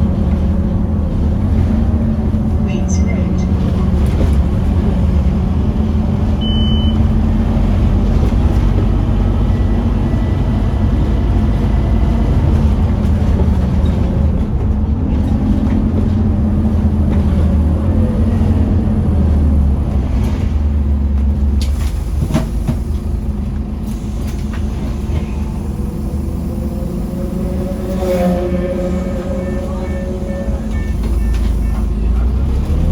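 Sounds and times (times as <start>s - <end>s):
bus engine pulling under load: 0.0s - 32.9s
high beep: 6.4s - 7.0s, 30.7s - 32.1s.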